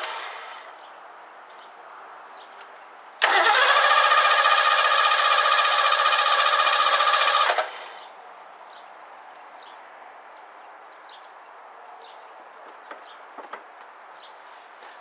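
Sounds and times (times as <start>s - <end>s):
engine cranking by starter: 0.0s - 0.7s, 3.2s - 8.0s.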